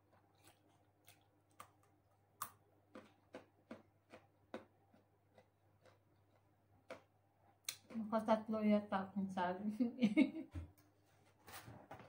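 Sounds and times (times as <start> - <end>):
carrot sticks being chewed: 0.0 - 8.1.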